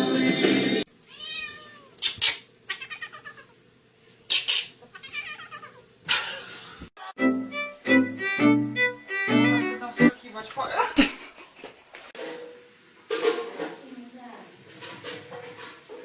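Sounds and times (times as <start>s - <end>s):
cat meowing and yowling: 1.1s - 2.0s, 2.7s - 3.5s, 4.9s - 5.8s.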